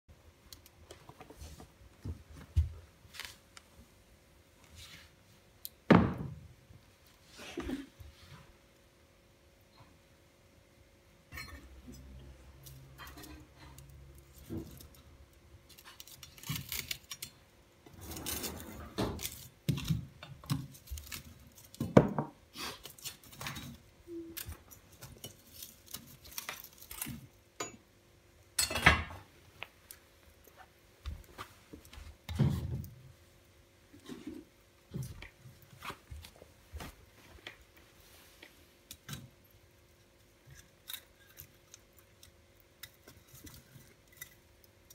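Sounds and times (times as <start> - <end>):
metal objects clinking and clattering: 11.3 - 15.1.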